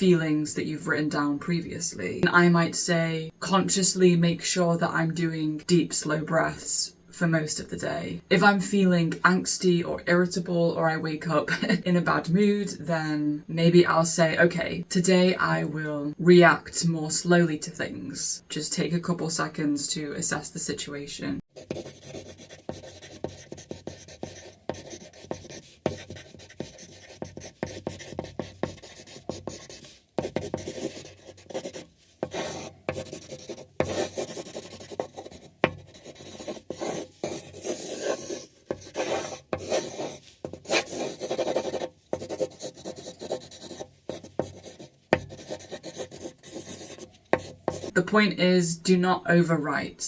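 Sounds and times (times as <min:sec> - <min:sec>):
pen scratching on paper: 0:21.5 - 0:48.0.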